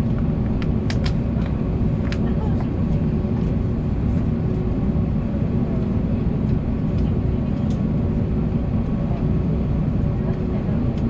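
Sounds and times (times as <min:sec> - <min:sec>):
aircraft cabin low rumble: 0:00.0 - 0:11.0
murmur of passengers: 0:00.0 - 0:11.0.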